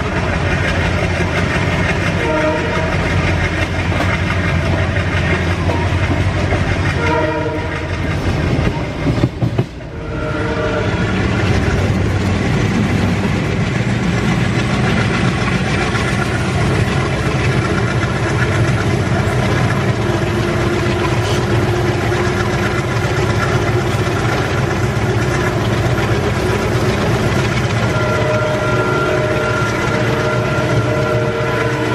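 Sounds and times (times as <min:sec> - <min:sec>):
train wheels clacking over rails: 0:00.0 - 0:31.9
locomotive horn blasts: 0:02.1 - 0:03.2, 0:06.9 - 0:08.0, 0:09.9 - 0:11.2, 0:27.6 - 0:31.9.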